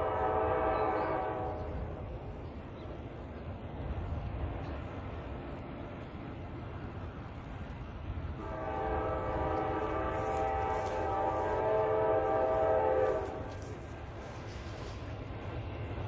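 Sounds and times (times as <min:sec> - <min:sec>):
locomotive air horn blast: 0:00.0 - 0:01.8, 0:08.4 - 0:13.8.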